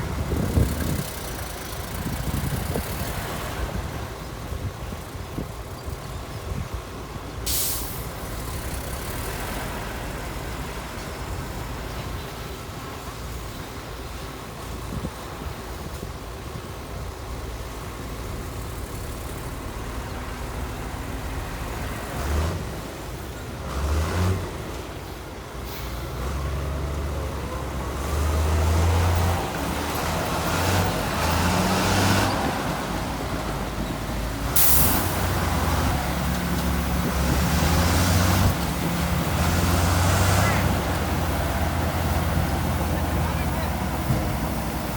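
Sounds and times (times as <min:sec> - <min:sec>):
diesel machinery rumbling: 0:00.0 - 0:44.9
air brake hiss: 0:07.5 - 0:08.1, 0:34.6 - 0:35.3.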